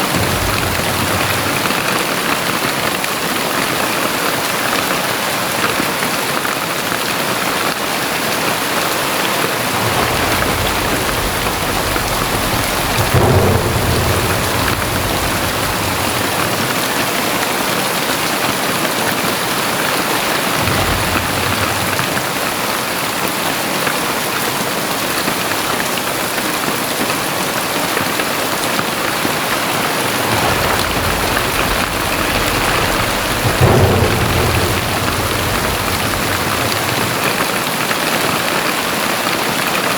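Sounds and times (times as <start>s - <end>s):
low thunder rumbling: 0.0s - 4.2s, 9.2s - 23.8s, 27.8s - 39.7s
heavy rain falling: 0.0s - 39.9s.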